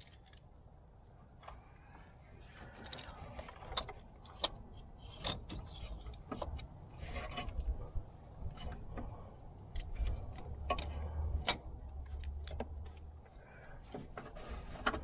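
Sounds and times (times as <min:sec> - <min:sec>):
clicks and knocks of hand tools: 0:00.0 - 0:00.4, 0:10.4 - 0:13.0.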